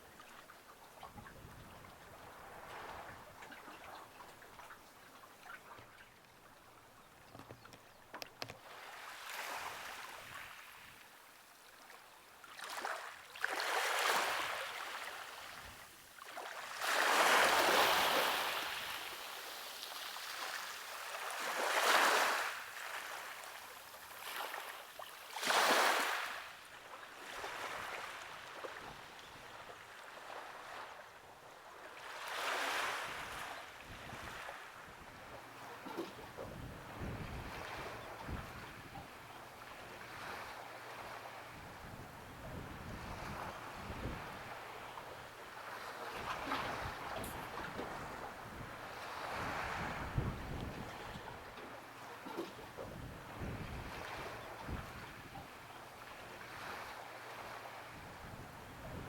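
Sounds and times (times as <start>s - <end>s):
sea waves washing on shore: 8.4s - 29.2s, 32.0s - 59.0s.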